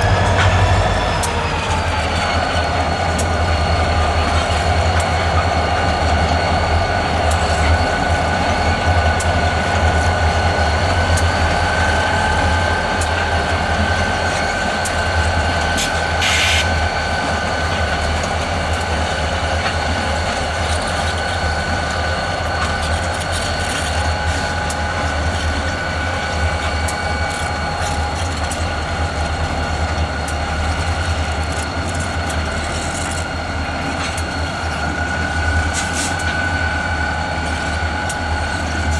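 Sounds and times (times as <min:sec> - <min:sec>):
diesel locomotive engine rumble: 0:00.0 - 0:38.9
short hiss: 0:16.2 - 0:16.7.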